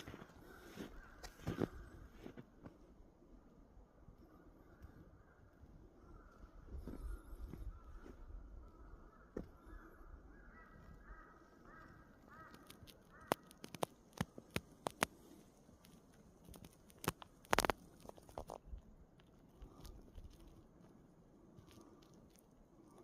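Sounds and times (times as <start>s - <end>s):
sharp crunching clicks: 11.7s - 23.0s.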